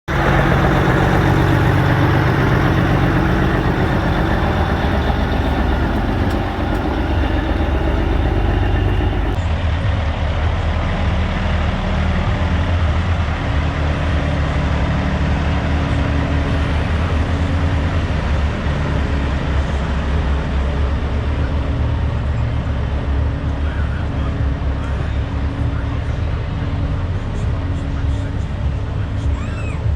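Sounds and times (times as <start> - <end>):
truck diesel engines running: 0.0 - 9.4.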